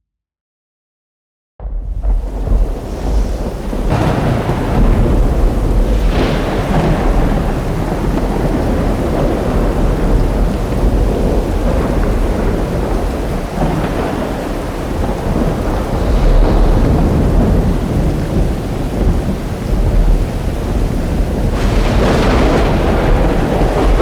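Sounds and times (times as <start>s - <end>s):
rolling thunder rumble: 1.6s - 24.0s
sharp thunderclap: 1.6s - 24.0s
heavy rain: 1.9s - 24.0s.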